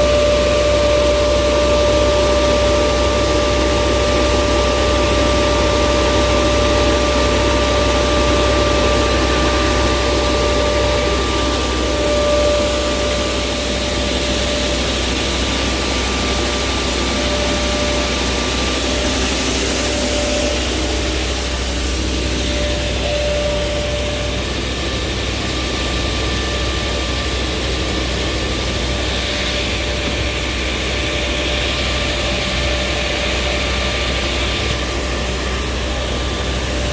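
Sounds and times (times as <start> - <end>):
grain vacuum conveyor running: 0.0 - 36.9.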